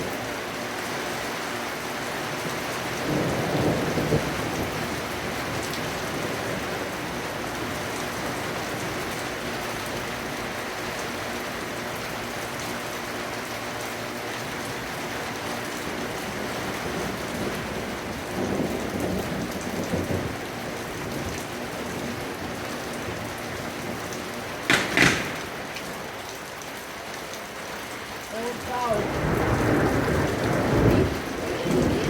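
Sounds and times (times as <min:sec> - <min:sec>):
heavy rain falling: 0:00.0 - 0:32.0
low rumble of thunder: 0:02.3 - 0:10.4, 0:15.3 - 0:26.2, 0:28.2 - 0:32.0.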